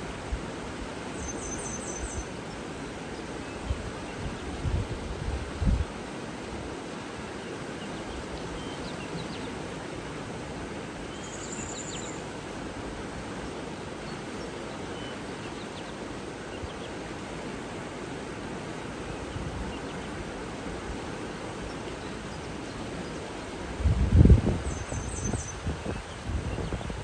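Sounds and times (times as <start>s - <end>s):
water flowing: 0.0s - 27.0s.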